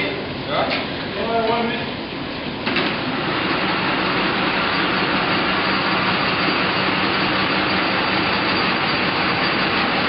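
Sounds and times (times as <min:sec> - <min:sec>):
belt-driven machinery running: 0:01.1 - 0:10.0.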